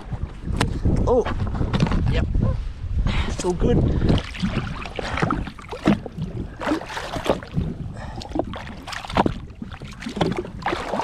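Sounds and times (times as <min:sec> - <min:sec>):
water splashing and sloshing: 0:03.7 - 0:11.0.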